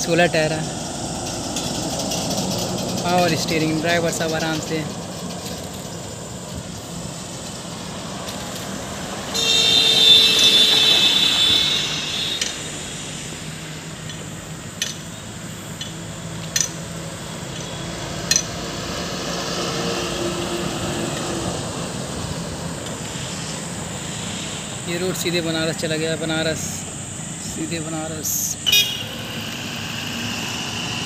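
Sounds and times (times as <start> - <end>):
highway traffic: 0.0 - 31.0
loud high-pitched tone: 9.3 - 13.4, 28.4 - 31.0.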